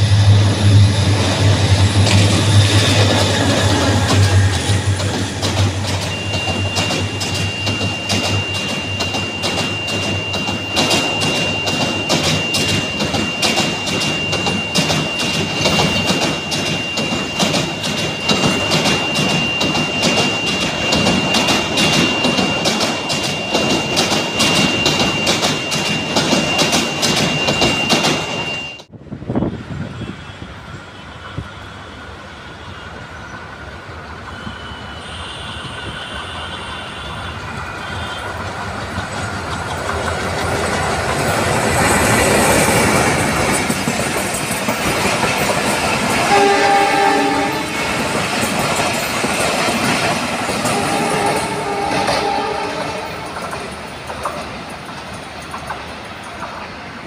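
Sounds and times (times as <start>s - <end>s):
high squeal: 0.0s - 28.9s, 34.2s - 53.9s
train wheels clickety-clack: 0.0s - 28.9s, 34.3s - 57.0s
locomotive horn: 34.3s - 38.5s, 46.2s - 48.0s, 50.6s - 53.5s.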